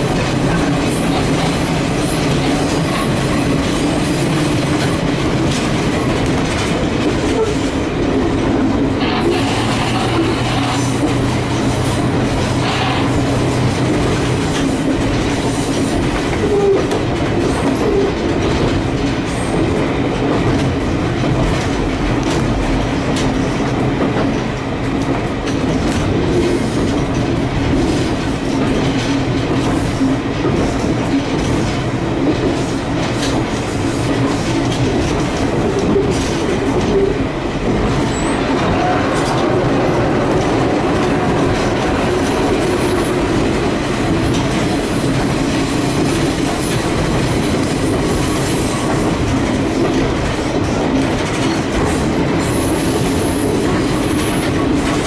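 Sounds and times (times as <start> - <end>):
rail joint clicks: 0.0 - 55.0
train wheels rumbling on rails: 0.0 - 55.0
diesel engine drone: 8.6 - 14.3.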